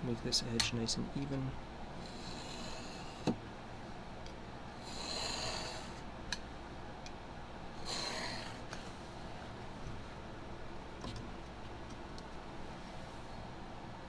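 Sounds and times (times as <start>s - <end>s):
knife rasping through foam: 4.8s - 6.0s, 7.8s - 9.0s.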